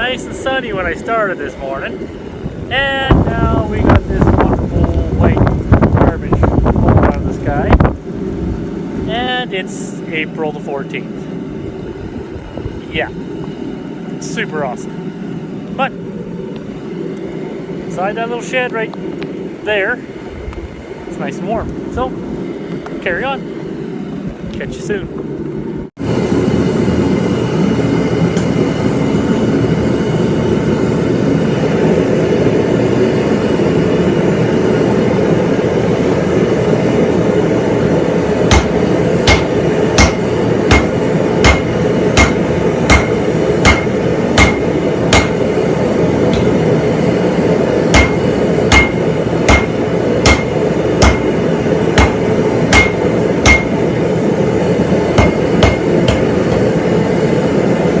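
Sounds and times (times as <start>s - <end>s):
hammer ringing on hot steel: 38.5s - 45.6s, 46.3s - 46.7s, 47.9s - 54.0s, 55.1s - 56.7s.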